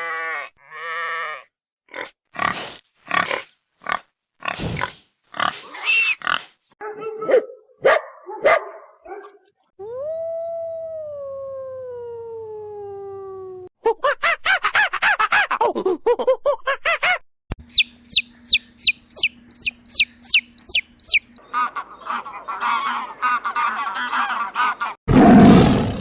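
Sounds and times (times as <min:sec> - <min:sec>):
animal squeals and grunts: 0:05.4 - 0:06.5
long falling howl: 0:09.8 - 0:13.7.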